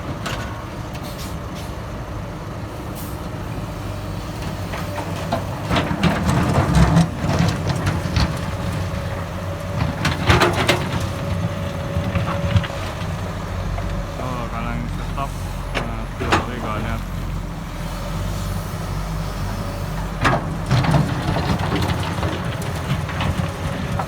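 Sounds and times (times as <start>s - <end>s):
diesel earthmoving machinery running: 0.0s - 24.0s
clattering and scraping: 4.7s - 14.1s, 20.0s - 24.0s.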